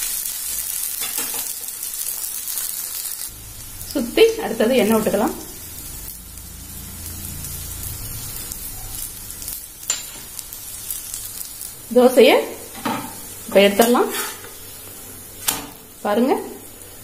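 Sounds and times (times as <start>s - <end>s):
oil sizzling under frying dosa: 0.0s - 17.0s
person's voice: 3.9s - 5.5s, 11.9s - 12.6s, 13.5s - 14.2s, 16.0s - 16.6s.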